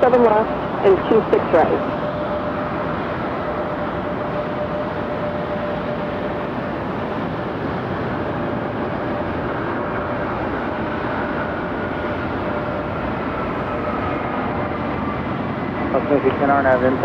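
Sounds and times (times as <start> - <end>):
jet engine rushing and whining: 0.0 - 17.0.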